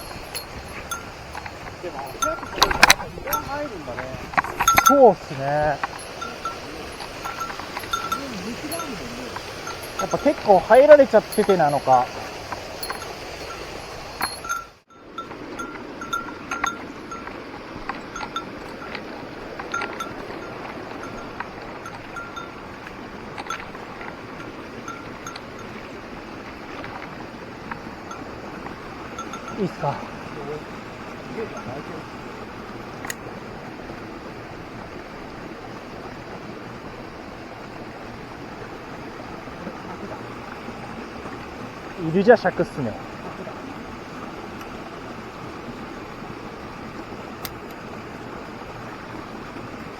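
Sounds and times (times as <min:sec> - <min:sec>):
small metal bell jingling: 0:00.0 - 0:25.9, 0:28.1 - 0:30.1
mountain stream rushing: 0:00.0 - 0:49.9.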